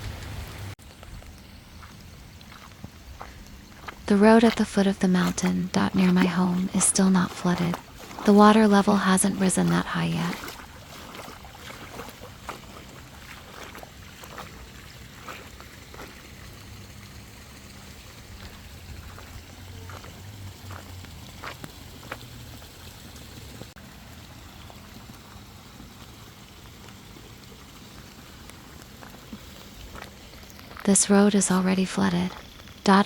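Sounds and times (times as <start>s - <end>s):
low steady hum: 0.0s - 21.3s
light rain falling: 0.0s - 33.0s.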